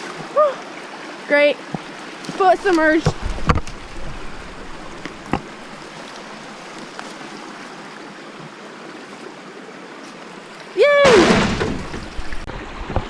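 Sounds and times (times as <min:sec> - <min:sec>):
creek water running over rocks: 0:00.0 - 0:12.5
sharp knock: 0:11.1 - 0:12.4
thumps: 0:11.1 - 0:12.5.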